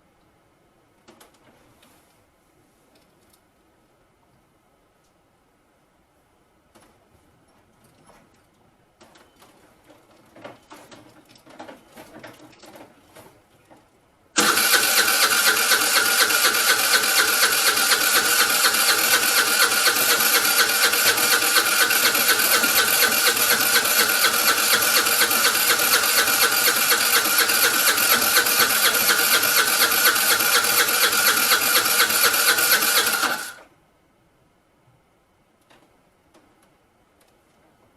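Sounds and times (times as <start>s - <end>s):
scooter starter cranking: 14.4s - 33.6s.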